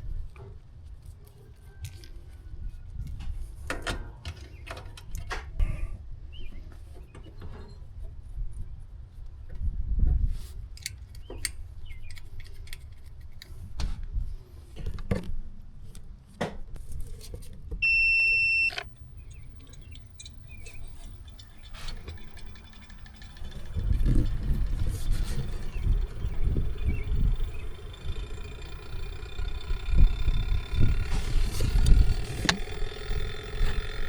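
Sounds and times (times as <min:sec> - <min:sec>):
high electronic beep: 0:17.8 - 0:20.0
low rumble: 0:22.1 - 0:34.0.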